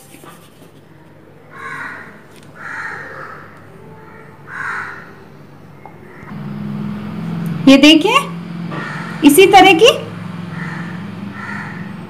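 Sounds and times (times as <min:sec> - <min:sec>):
bird harsh calls: 0:01.5 - 0:06.4, 0:08.6 - 0:09.3, 0:10.1 - 0:12.0.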